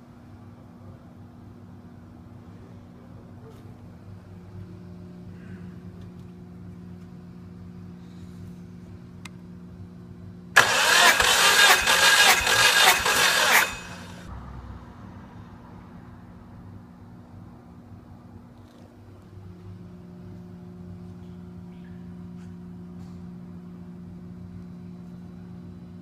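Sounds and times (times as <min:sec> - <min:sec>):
loud burst of engine noise: 0:10.6 - 0:14.4
engine humming: 0:10.6 - 0:14.6.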